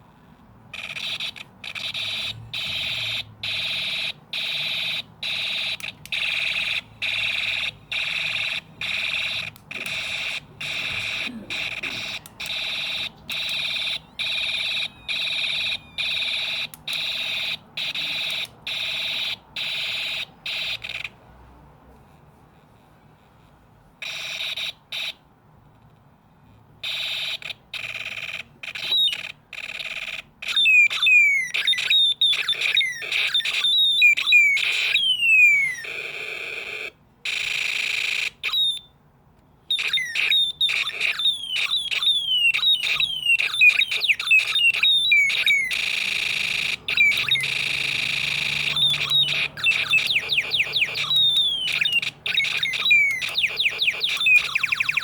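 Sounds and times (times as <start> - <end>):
quick falling electronic chirps: 39.7 - 55.0
steady shrill electronic tone: 39.7 - 55.0.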